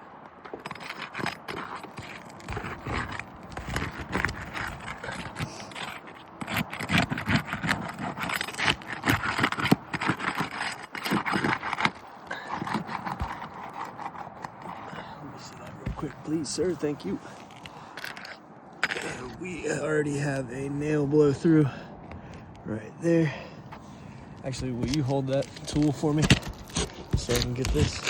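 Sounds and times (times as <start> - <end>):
scraping on roof shingles: 0.4 - 19.4, 24.4 - 28.0.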